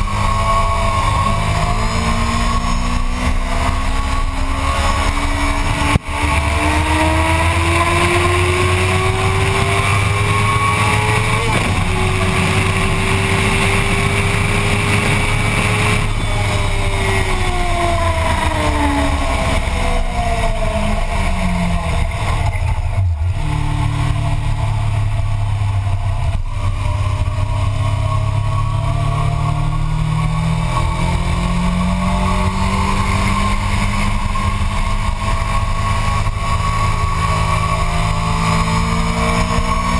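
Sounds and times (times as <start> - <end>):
motorcycle engine accelerating: 0.0 - 39.9
wind noise: 0.0 - 39.9.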